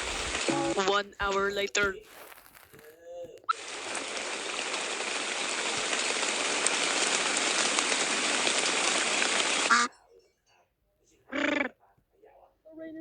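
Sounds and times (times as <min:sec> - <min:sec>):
rain falling: 0:00.0 - 0:09.8.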